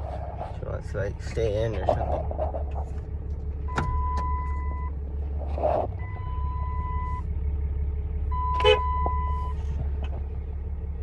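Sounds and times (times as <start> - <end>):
diesel truck idling: 0.0 - 11.0
dashboard warning chime: 3.7 - 4.9.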